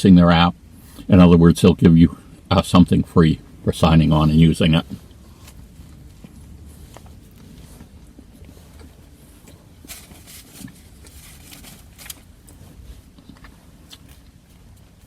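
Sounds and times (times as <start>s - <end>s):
low room rumble: 0.0s - 15.0s
paper rustling and crinkling: 9.8s - 12.4s.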